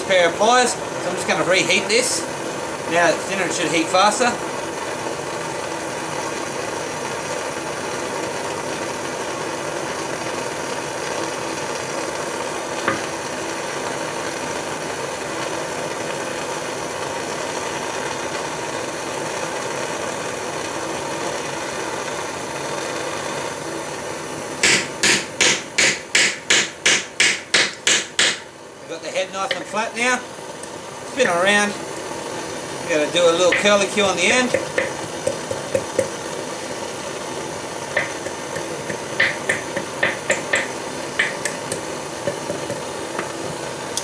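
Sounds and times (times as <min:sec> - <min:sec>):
torch flame hissing: 0:00.0 - 0:44.0
hammer striking hot metal on anvil: 0:24.6 - 0:28.5, 0:33.5 - 0:36.1, 0:38.0 - 0:43.6.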